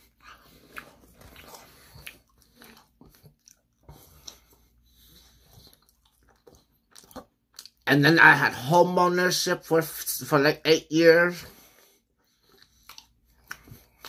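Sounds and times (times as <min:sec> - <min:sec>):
person chewing crunchy food: 0:00.0 - 0:07.9, 0:11.5 - 0:14.0.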